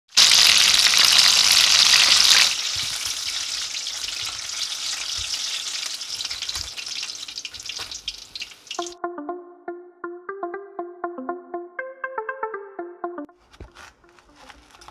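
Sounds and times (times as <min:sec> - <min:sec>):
peppers deep-frying in hot oil: 0:00.1 - 0:09.0.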